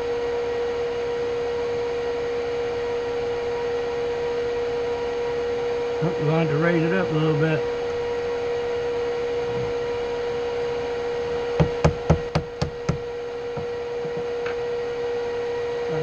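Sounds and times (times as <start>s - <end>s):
machine humming: 0.0s - 16.0s
sharp knocks: 11.6s - 13.7s.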